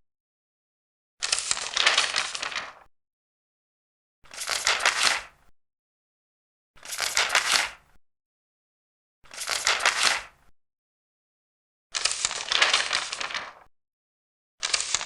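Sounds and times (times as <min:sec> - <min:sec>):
paper pages turning: 0:01.2 - 0:02.9, 0:04.3 - 0:05.3, 0:06.8 - 0:07.8, 0:09.3 - 0:10.4, 0:12.0 - 0:13.7, 0:14.6 - 0:15.0.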